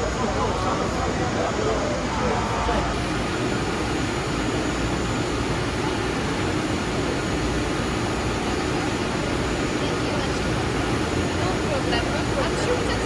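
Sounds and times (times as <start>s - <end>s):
train fans rushing: 2.4s - 13.0s
faint high whine: 2.9s - 13.0s.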